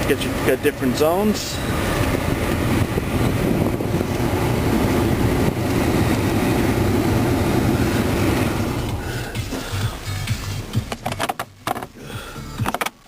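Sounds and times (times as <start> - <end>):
climate control fan blowing: 0.0 - 10.1
car cabin engine hum: 0.0 - 13.0.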